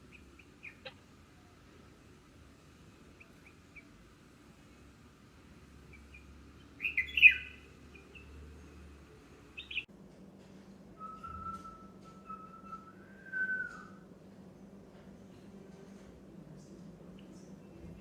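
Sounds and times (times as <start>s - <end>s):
birds calling: 0.0s - 2.0s, 2.8s - 9.9s
steady whistle-like tone: 11.0s - 14.0s.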